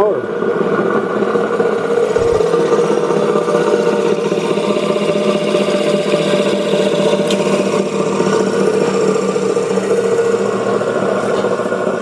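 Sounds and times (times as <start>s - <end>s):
sander motor humming: 1.1s - 12.0s
short low thump: 2.1s - 2.7s.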